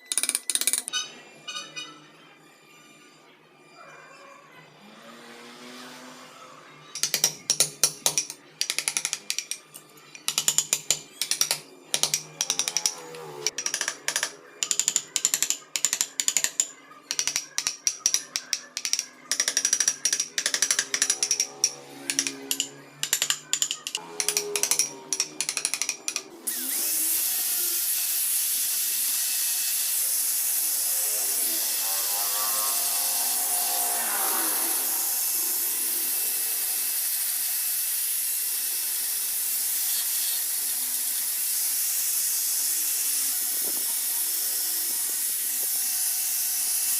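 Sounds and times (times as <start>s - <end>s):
carving tools clicking on wood: 0.0s - 0.9s, 7.0s - 26.6s.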